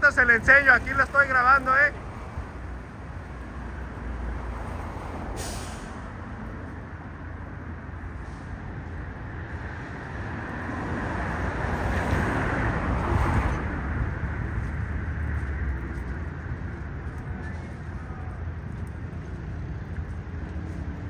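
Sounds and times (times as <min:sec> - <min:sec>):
vehicle passing by: 0:09.4 - 0:17.4.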